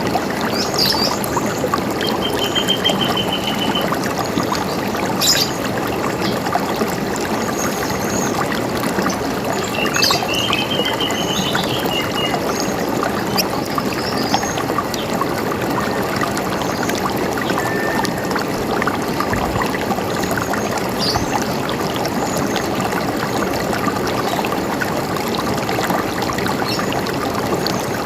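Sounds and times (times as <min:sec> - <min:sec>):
river water running: 0:00.0 - 0:28.0
birds chirping and trilling: 0:00.4 - 0:06.4, 0:09.1 - 0:15.1.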